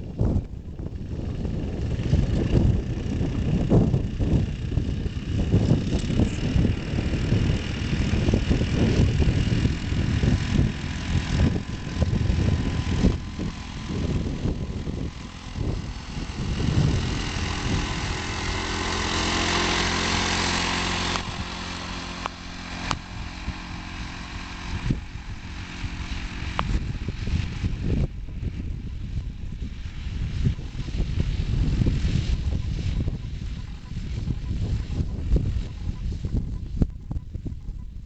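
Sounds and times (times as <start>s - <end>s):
tractor engine running: 0.0s - 37.7s.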